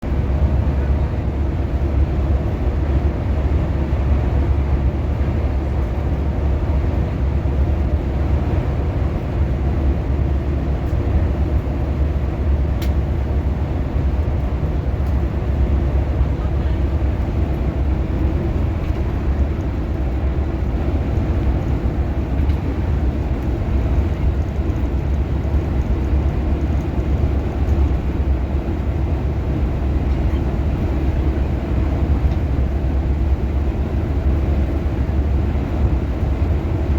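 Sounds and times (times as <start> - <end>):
bus engine and road rumble: 0.0 - 36.9
faint tick: 12.8 - 13.0.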